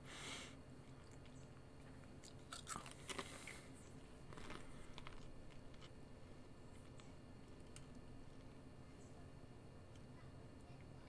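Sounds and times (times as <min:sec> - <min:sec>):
crisps crunching: 0:00.9 - 0:06.0.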